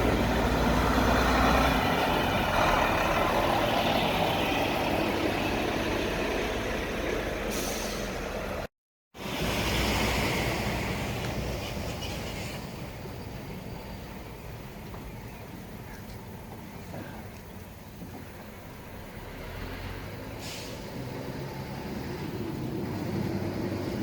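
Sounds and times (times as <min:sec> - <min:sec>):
truck and road traffic: 0:00.0 - 0:24.0.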